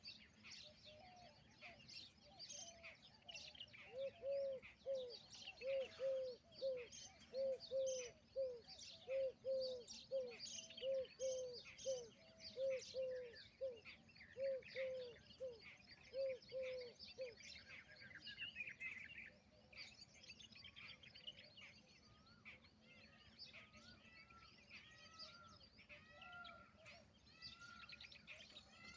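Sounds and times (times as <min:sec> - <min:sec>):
small birds chirping: 0:00.0 - 0:28.9
peahen calling: 0:02.5 - 0:18.9.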